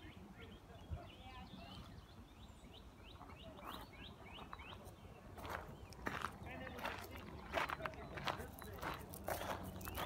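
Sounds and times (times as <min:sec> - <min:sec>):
songbirds chirping: 0:00.0 - 0:10.0
footsteps on gravel: 0:03.6 - 0:10.0.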